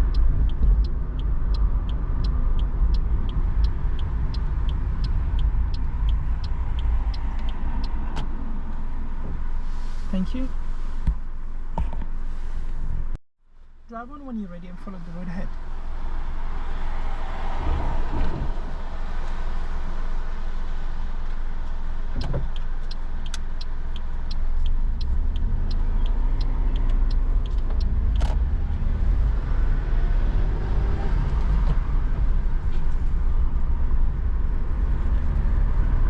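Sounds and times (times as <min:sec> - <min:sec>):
indicator ticking: 0:00.0 - 0:08.3, 0:22.2 - 0:28.2
car engine and road rumble: 0:00.0 - 0:36.0.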